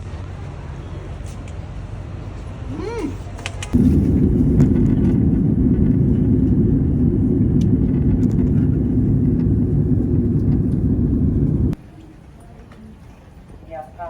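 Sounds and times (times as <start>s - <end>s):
loud low rumble: 3.8s - 11.8s.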